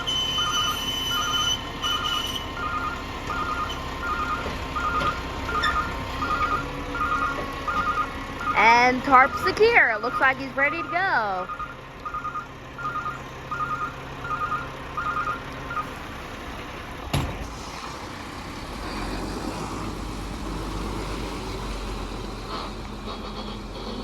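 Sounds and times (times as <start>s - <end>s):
electronic beeps: 0.0s - 15.9s
diesel truck engine running: 0.0s - 24.0s.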